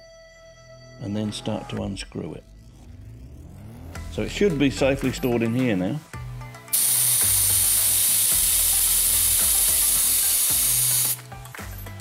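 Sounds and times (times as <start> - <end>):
air hissing out of a tyre: 6.7 - 11.2.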